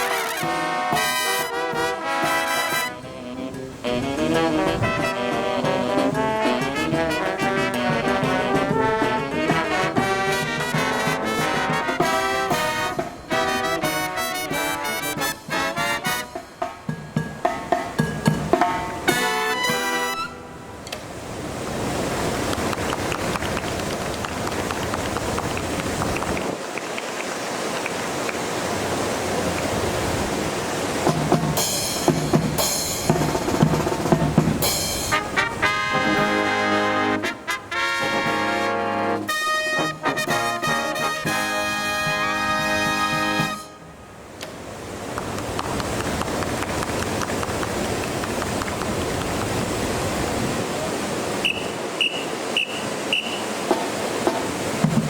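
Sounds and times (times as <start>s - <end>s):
brass chords: 0.0s - 16.9s, 18.4s - 20.8s, 31.6s - 44.0s
bass and snare drums: 0.0s - 20.1s, 31.0s - 37.3s, 40.0s - 43.6s, 51.5s - 55.0s
wind buffeting microphone: 3.1s - 10.2s, 21.0s - 35.7s, 44.6s - 55.0s
short high beeps: 51.4s - 53.5s.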